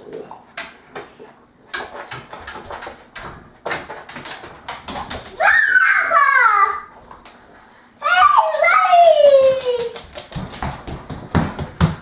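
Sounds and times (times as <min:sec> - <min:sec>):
dogs scuffling: 0:00.5 - 0:05.8, 0:08.1 - 0:12.0.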